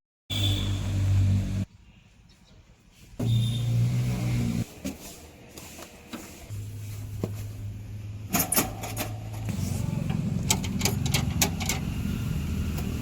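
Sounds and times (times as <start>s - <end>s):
diesel engine running: 6.5s - 13.0s
metallic knocks and clanks: 10.1s - 11.9s.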